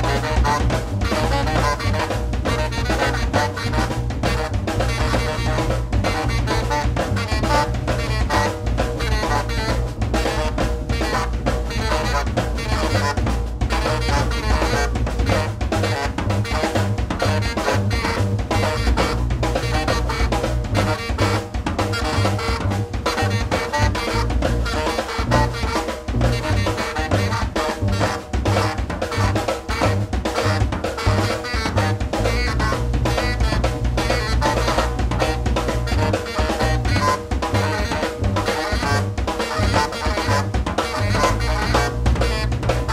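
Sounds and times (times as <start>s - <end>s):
low steady bass: 0.0s - 21.3s, 22.0s - 30.7s, 31.8s - 42.9s
drum kit: 0.0s - 42.9s
saxophone: 0.0s - 42.9s.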